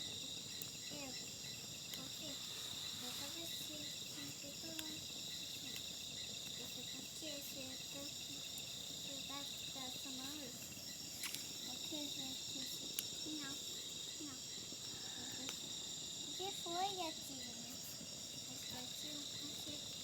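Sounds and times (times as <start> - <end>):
faint clicks: 0.0 - 1.0, 1.9 - 2.4, 3.0 - 7.2, 11.2 - 13.6, 14.7 - 15.7
night insects chorus: 0.0 - 20.0
faint low voices: 1.9 - 10.8, 11.5 - 20.0.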